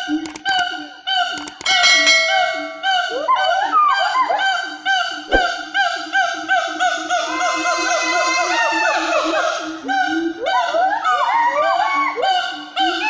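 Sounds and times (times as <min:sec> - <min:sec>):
sharp click: 0:00.0 - 0:00.7, 0:01.3 - 0:02.7.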